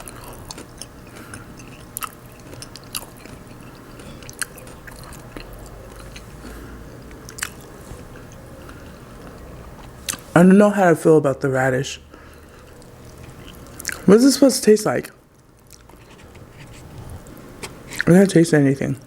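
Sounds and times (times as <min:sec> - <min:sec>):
chewing food: 0:00.0 - 0:10.3, 0:12.2 - 0:14.1, 0:15.0 - 0:18.1.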